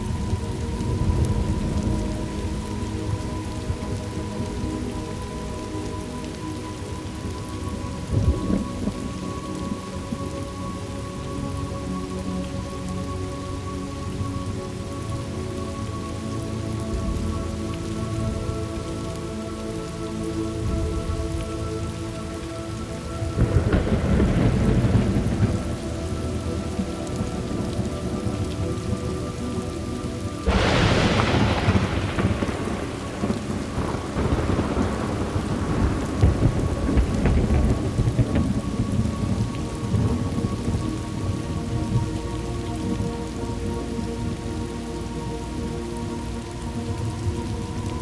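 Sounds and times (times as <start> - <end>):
steady rain falling: 0.0 - 48.0
rumble of thunder: 8.0 - 10.9, 23.2 - 44.7
sharp thunderclap: 30.5 - 40.2.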